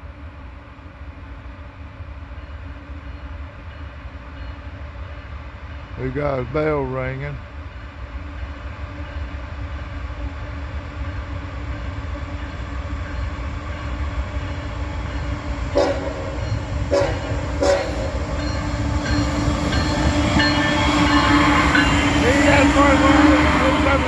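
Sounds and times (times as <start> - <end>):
diesel locomotives rumbling: 0.0 - 24.0
train horn blasts: 15.7 - 18.2, 19.8 - 24.0.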